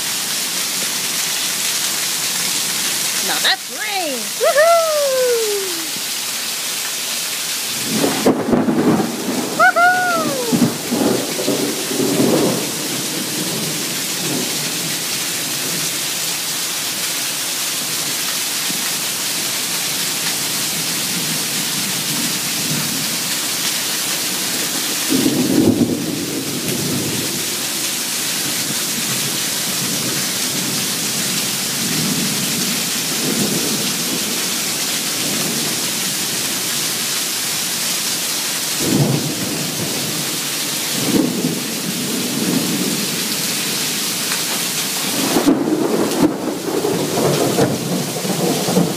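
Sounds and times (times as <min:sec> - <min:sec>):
heavy rain hissing: 0:00.0 - 0:48.9
water pouring off roof onto ground: 0:00.0 - 0:48.9.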